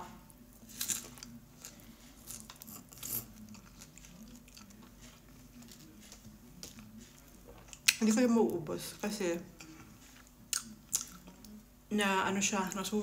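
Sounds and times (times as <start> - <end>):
person chewing wet smacks: 0.6 - 8.1, 9.6 - 11.6.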